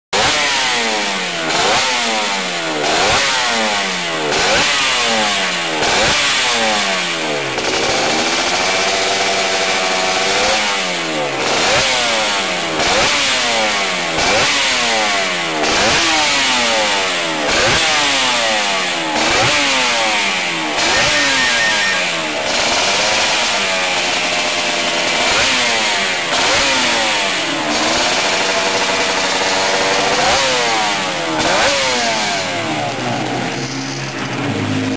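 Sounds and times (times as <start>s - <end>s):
racing engine revving: 0.1s - 34.9s.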